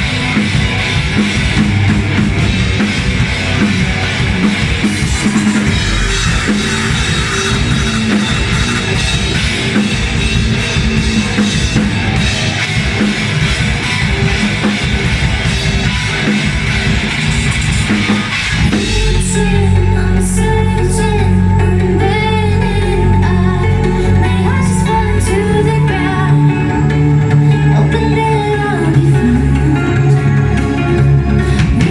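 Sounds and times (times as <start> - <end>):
drum kit: 0.0 - 31.9
live rock band playing: 0.0 - 31.9
sustained guitar chord: 2.0 - 11.4.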